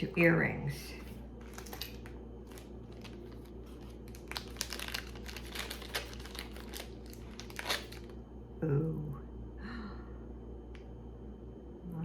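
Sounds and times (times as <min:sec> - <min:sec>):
plastic packaging crinkling: 0:01.4 - 0:08.2.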